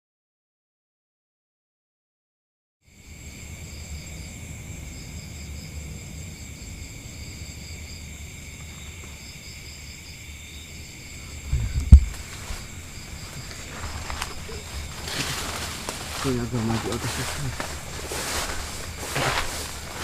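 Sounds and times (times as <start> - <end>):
forest insects trilling: 2.9 - 20.0
loud low thump: 11.4 - 12.6
low rumble: 11.4 - 15.0.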